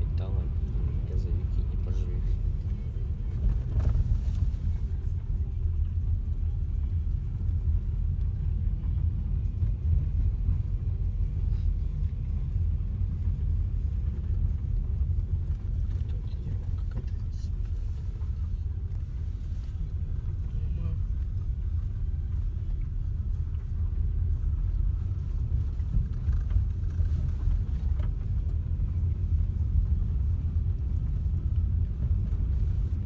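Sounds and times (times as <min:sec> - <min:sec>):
low vehicle rumble: 0:00.0 - 0:33.0.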